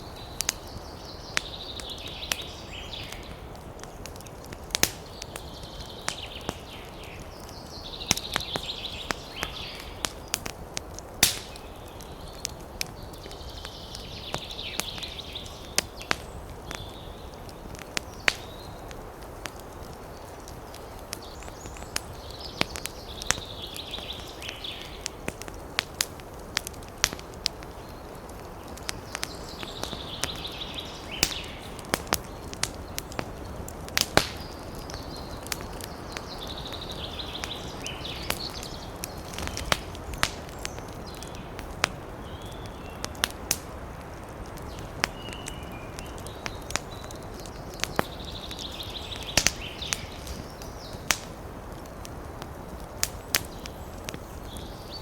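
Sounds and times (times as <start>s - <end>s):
low rumble of burning: 0.0s - 55.0s
wood fire crackling: 0.0s - 55.0s.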